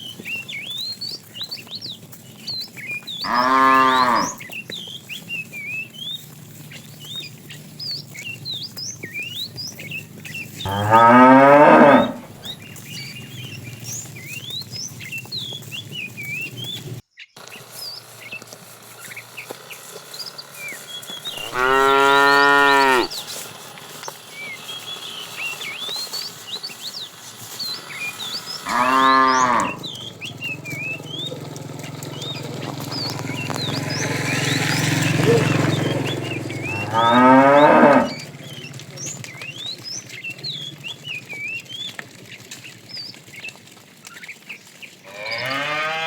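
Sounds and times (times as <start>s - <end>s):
cattle mooing: 3.2s - 4.4s, 10.6s - 12.6s, 21.2s - 23.4s, 27.9s - 39.4s, 45.1s - 46.0s.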